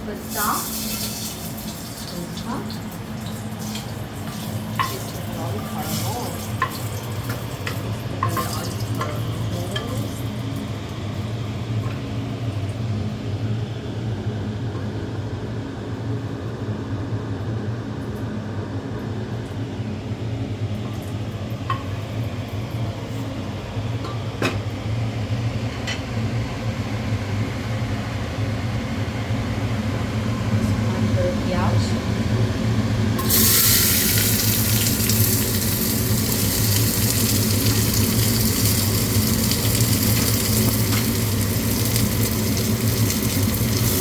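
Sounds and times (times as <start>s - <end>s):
hood fan humming: 0.0s - 16.8s, 18.4s - 44.0s
oil sizzling in a pan: 0.2s - 10.3s, 33.2s - 44.0s.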